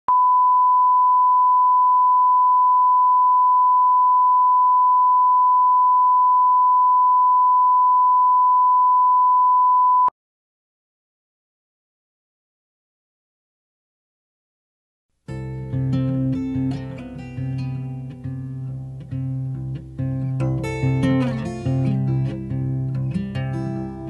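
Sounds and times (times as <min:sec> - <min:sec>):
steady pure beep: 0:00.1 - 0:10.1.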